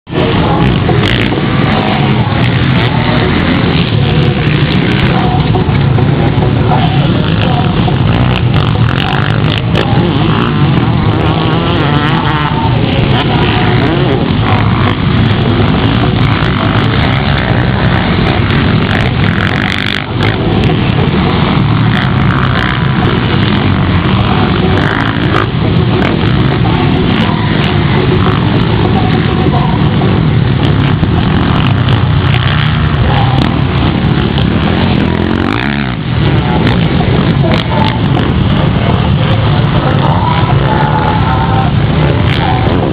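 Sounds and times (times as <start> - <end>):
motorcycle engines racing: 0.0 - 42.9.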